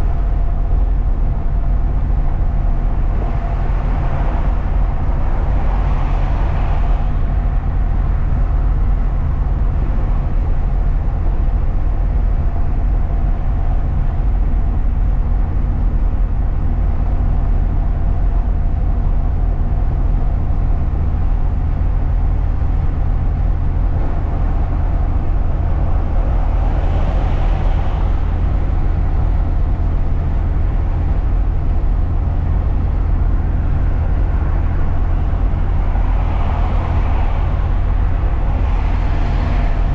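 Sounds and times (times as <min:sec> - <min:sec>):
truck engine and tyres rumbling: 0:00.0 - 0:39.9
rushing noise: 0:02.6 - 0:08.5, 0:23.7 - 0:39.9.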